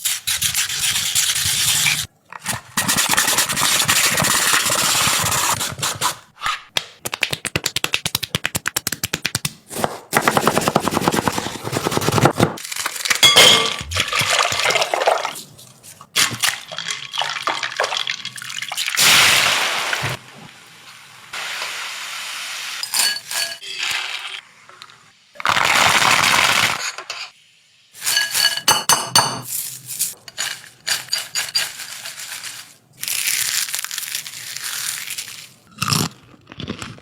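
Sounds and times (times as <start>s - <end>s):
metal utensil clinking on cookware: 13.2s - 13.9s, 22.8s - 23.7s, 28.1s - 29.5s
cooking hiss: 19.0s - 28.7s.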